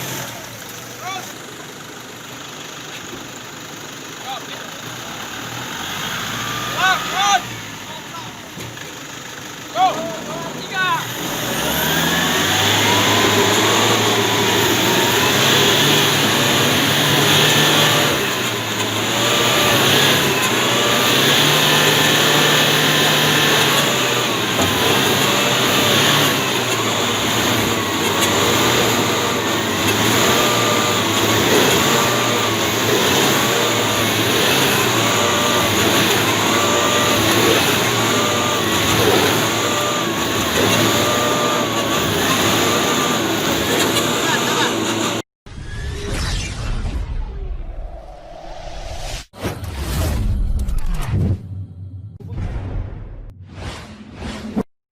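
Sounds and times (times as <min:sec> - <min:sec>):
pickup engine revving: 0:00.0 - 0:01.5, 0:04.5 - 0:45.2.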